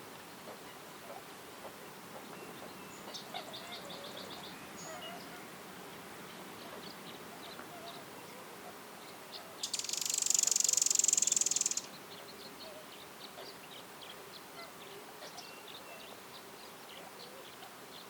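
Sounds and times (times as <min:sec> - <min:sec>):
faint bird chirps: 0:06.6 - 0:18.0
insect buzzing trill: 0:09.6 - 0:11.8.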